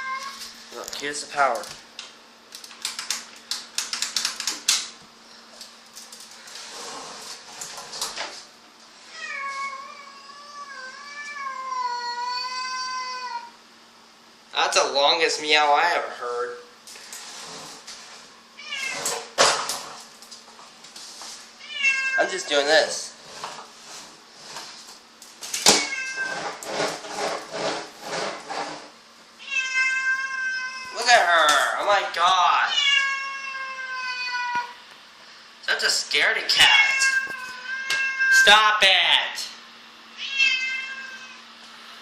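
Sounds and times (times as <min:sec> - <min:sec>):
sharp clicks and rattles: 0:01.6 - 0:05.0
cat meowing: 0:18.6 - 0:19.2, 0:21.6 - 0:22.3, 0:25.7 - 0:26.5, 0:29.4 - 0:31.0, 0:32.7 - 0:34.8, 0:36.6 - 0:38.5, 0:40.2 - 0:41.4.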